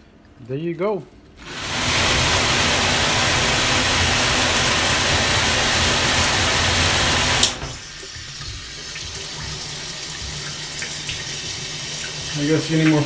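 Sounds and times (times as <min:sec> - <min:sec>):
shower head spraying water: 0:01.4 - 0:09.5, 0:10.7 - 0:13.0
shower setting switch click: 0:06.1 - 0:07.8.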